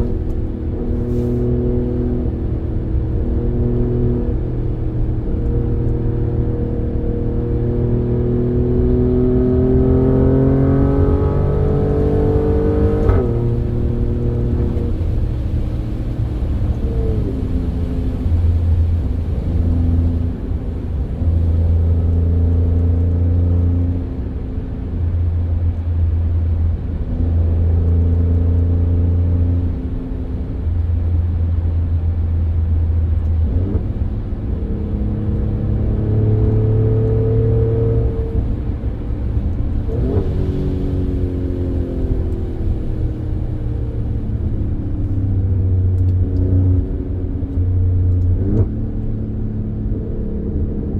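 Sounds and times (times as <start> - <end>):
car engine revving: 0.0 - 24.4, 33.1 - 50.9.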